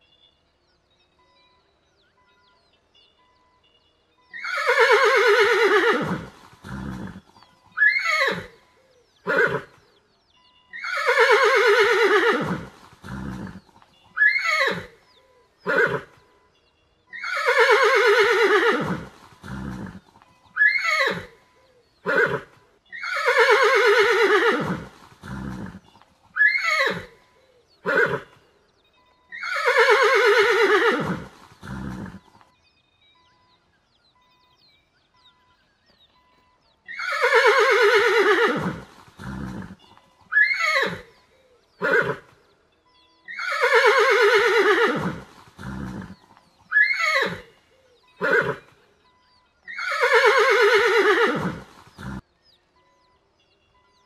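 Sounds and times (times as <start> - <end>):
horse whinnying: 4.4 - 8.6, 9.2 - 9.7, 10.8 - 15.0, 15.6 - 16.1, 17.2 - 21.4, 22.0 - 27.2, 27.8 - 28.4, 29.4 - 32.4, 36.9 - 41.1, 41.8 - 42.3, 43.3 - 47.5, 48.2 - 48.7, 49.7 - 52.2.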